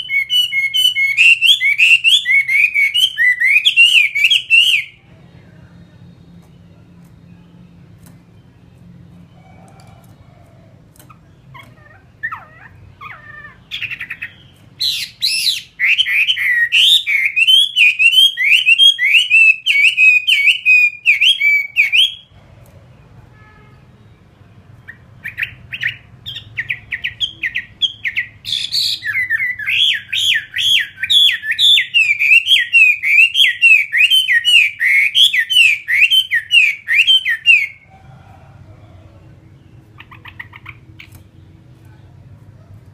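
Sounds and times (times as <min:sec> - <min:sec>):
bird singing whistled notes: 0:00.0 - 0:05.0, 0:13.8 - 0:22.3, 0:24.9 - 0:37.8.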